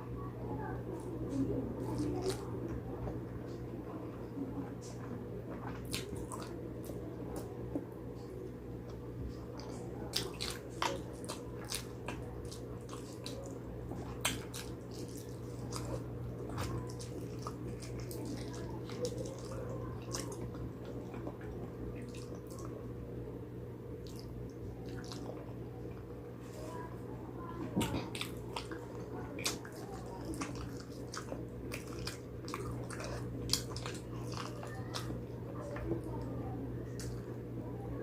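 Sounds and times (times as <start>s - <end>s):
wet chewing and lip-smacking: 1.0s - 2.5s, 5.6s - 7.5s, 8.2s - 22.8s, 24.0s - 26.1s, 27.8s - 37.3s.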